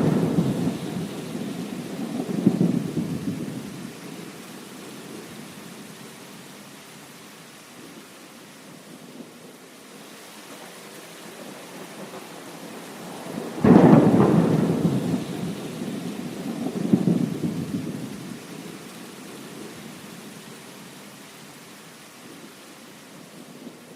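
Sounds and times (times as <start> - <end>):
thunder rumbling: 0.0 - 5.4, 11.4 - 18.8
heavy rain: 0.0 - 23.9.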